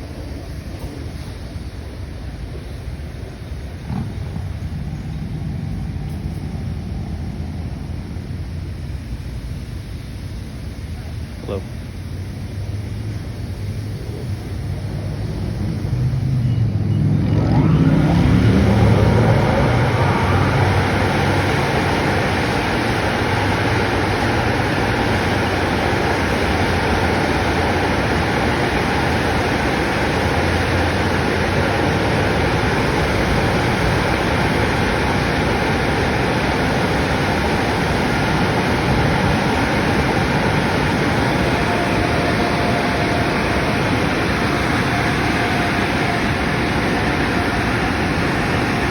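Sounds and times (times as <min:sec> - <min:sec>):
low rumble: 0:02.3 - 0:11.0, 0:12.1 - 0:24.6.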